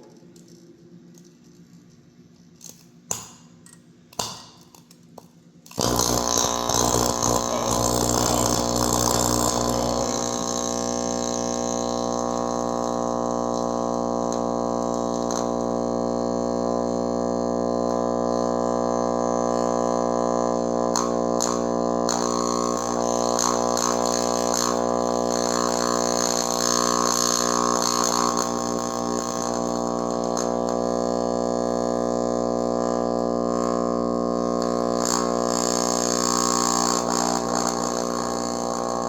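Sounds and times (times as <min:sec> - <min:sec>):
transformer electrical buzz: 0:00.0 - 0:39.0.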